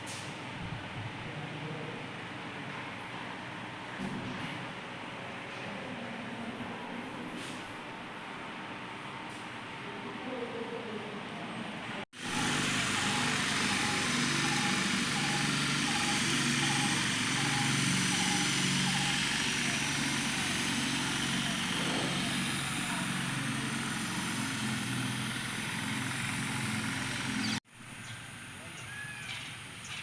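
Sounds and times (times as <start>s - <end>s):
road and wind noise: 11.6s - 30.0s
vehicle engine running: 12.2s - 28.6s.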